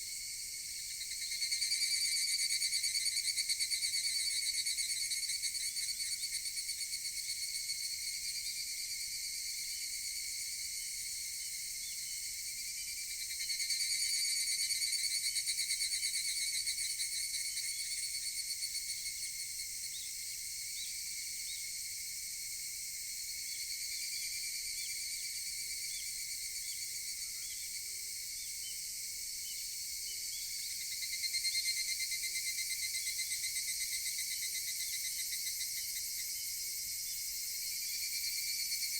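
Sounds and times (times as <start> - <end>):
cicadas trilling: 0.2 - 8.9, 23.4 - 38.9.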